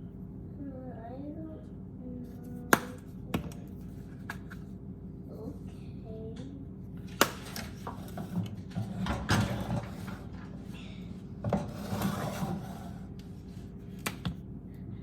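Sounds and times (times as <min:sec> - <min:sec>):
rubbing and scraping: 0:11.5 - 0:13.7.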